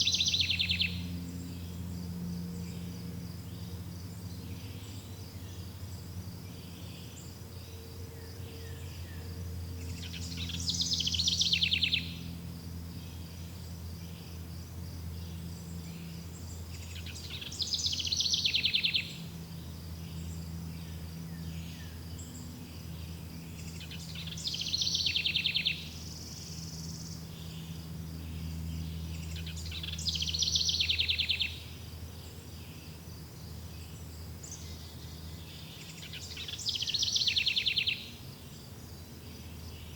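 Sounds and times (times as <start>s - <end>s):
songbird trilling: 0.0s - 1.8s, 8.5s - 12.4s, 15.3s - 19.4s, 23.4s - 32.8s, 33.8s - 38.7s
crickets chirping: 0.0s - 39.9s
low steady rumble: 0.0s - 39.9s.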